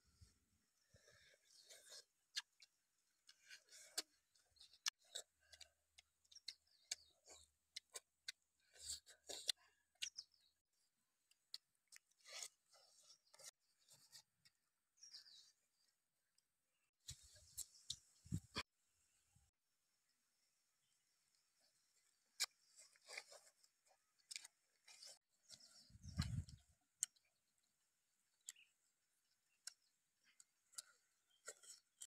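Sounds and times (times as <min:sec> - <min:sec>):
people chewing chicken: 0:00.0 - 0:18.7, 0:21.0 - 0:32.0.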